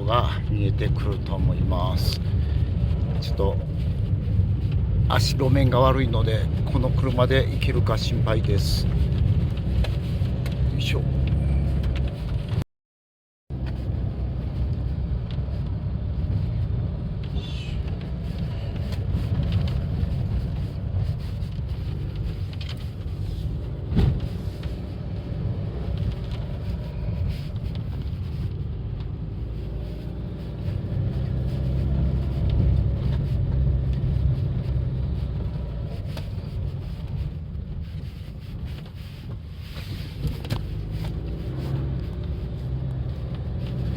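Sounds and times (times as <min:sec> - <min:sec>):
car engine and tyres rumbling: 0:00.0 - 0:12.6, 0:13.5 - 0:43.9.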